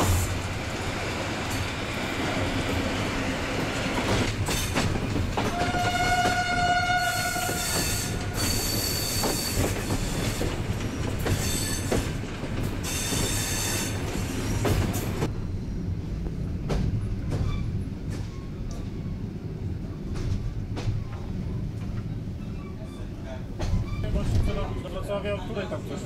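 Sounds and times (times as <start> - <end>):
train rumbling on track: 0.0 - 26.0
train wheels squealing: 7.1 - 10.5, 11.2 - 12.1, 12.8 - 15.8, 17.3 - 18.9, 22.3 - 25.0.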